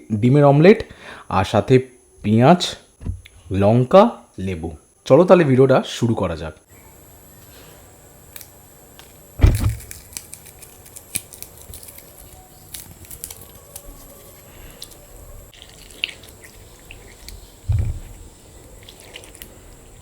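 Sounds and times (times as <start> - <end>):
loud low thump: 3.0 - 3.2, 9.4 - 9.9, 17.7 - 18.1
wet squishing of eating rice: 15.5 - 20.0.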